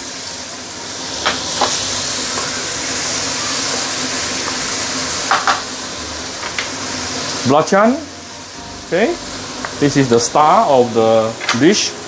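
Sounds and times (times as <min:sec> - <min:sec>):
chili paste sizzling in oil: 0:00.0 - 0:12.0.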